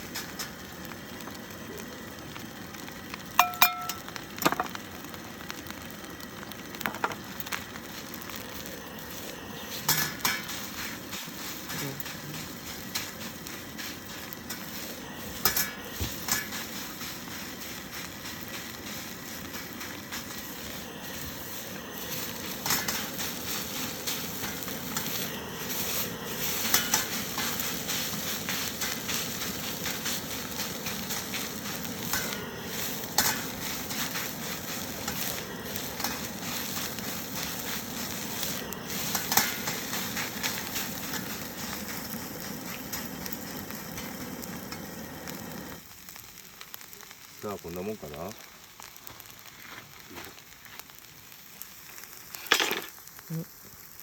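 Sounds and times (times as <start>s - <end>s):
rice sizzling in a wok: 0.0s - 54.0s
spatula stirring rice: 6.4s - 45.5s.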